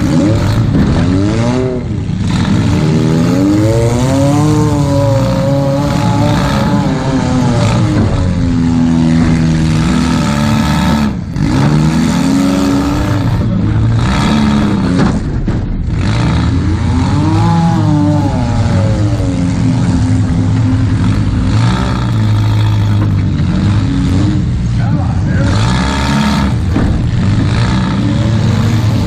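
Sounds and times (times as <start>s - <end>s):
car engine revving hard: 0.0s - 29.0s.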